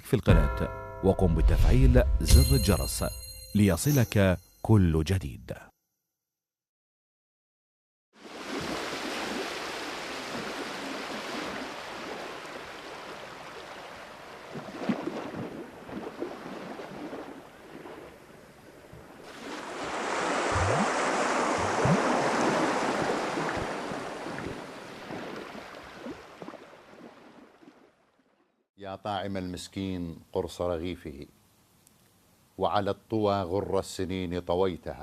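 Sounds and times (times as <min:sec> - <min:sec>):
ocean waves washing in: 0:08.2 - 0:27.8.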